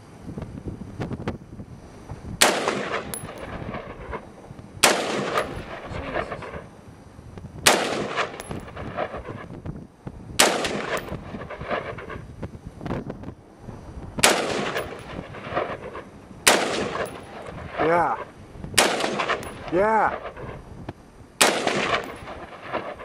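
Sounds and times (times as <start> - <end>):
rifle shots with echo: 2.4 - 4.2, 4.8 - 6.7, 7.6 - 9.5, 10.4 - 12.2, 14.2 - 20.6, 21.4 - 23.0.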